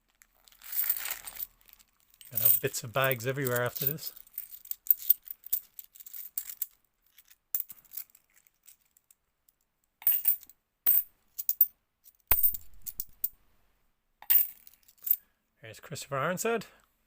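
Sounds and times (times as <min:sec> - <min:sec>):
coins clinking: 0:00.5 - 0:09.0, 0:10.0 - 0:11.7, 0:12.3 - 0:13.3, 0:14.2 - 0:15.2.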